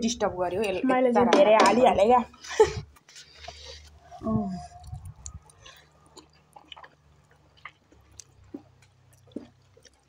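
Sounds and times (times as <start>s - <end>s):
people chewing and slurping noodles: 2.3s - 10.0s
wet mouth clicks and smacks: 4.8s - 10.0s.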